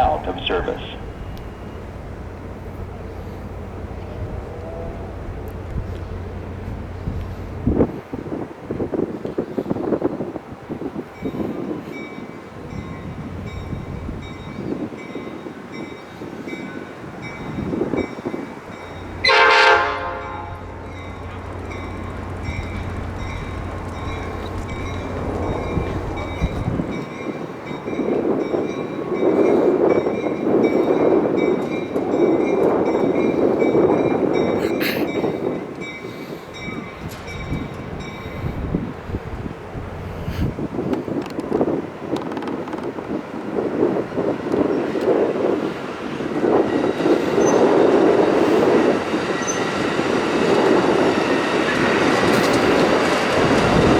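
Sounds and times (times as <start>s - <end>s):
locomotive engine droning: 0.0s - 53.9s
train wheels rumbling: 0.0s - 53.9s
train horn blast: 19.2s - 20.9s.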